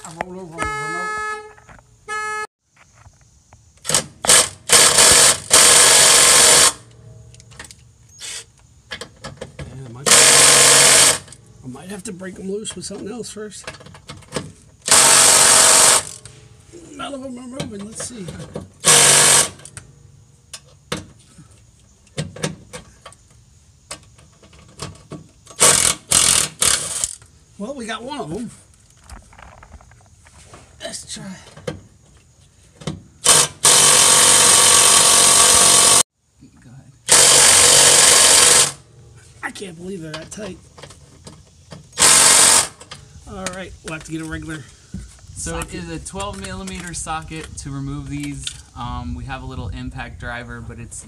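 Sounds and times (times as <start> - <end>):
car horn honk: 0.5 - 2.5
tools clicking and knocking: 13.6 - 14.6
impact driver hammering: 33.2 - 36.0.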